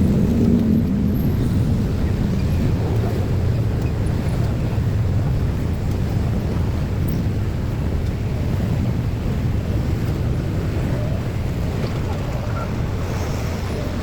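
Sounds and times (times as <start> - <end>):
low rumble of motor vehicles: 0.0 - 14.0.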